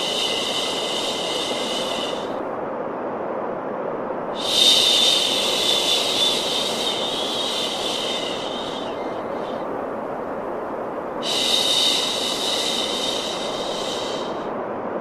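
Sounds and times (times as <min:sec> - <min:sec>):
high hiss with faint whistling: 0:00.0 - 0:15.0
low rushing noise: 0:00.0 - 0:15.0.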